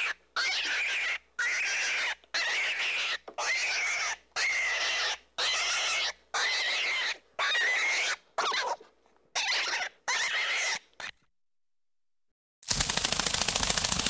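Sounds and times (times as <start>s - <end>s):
animal squealing: 0.0s - 11.2s.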